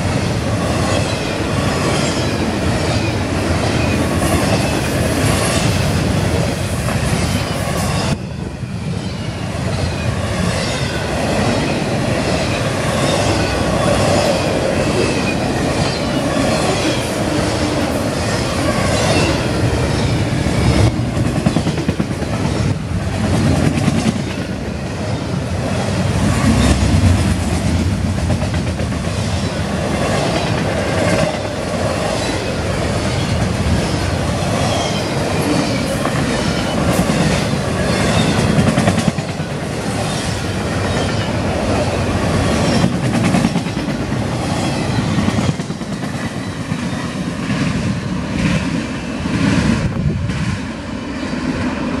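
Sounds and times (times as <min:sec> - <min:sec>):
freight train rumbling past: 0:00.0 - 0:52.0.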